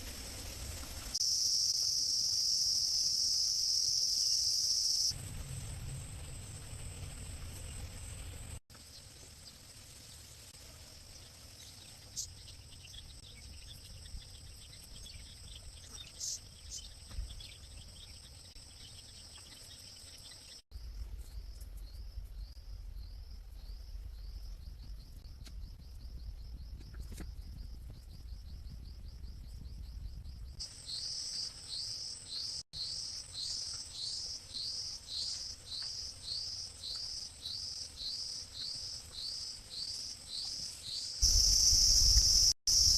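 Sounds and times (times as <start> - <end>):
insects buzzing: 0.7 - 8.9, 30.6 - 42.9
crickets chirping: 1.1 - 8.5, 18.4 - 42.9
low rumble: 5.1 - 8.6.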